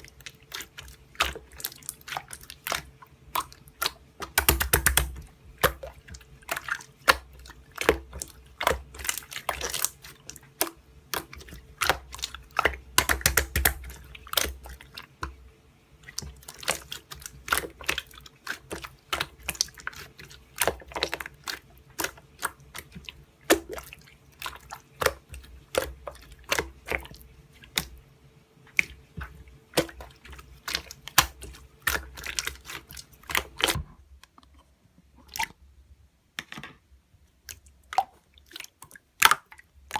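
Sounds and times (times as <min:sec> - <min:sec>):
faint steady hum: 0:00.0 - 0:39.9
slime sticky clicks and wet pops: 0:02.3 - 0:05.9, 0:06.5 - 0:14.6.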